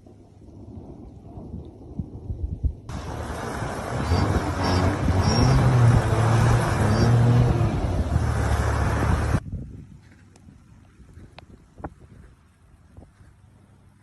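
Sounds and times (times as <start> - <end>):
road and wind noise: 1.9 - 14.0
vehicle engine running: 2.9 - 9.4.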